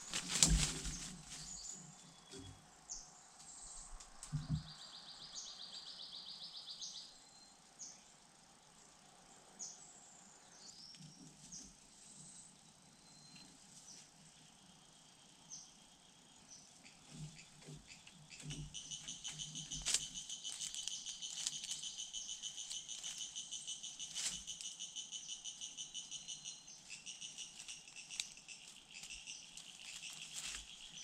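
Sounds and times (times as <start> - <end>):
small birds chirping: 8.8 - 31.0
rapid pulsed bird trill: 14.2 - 31.0.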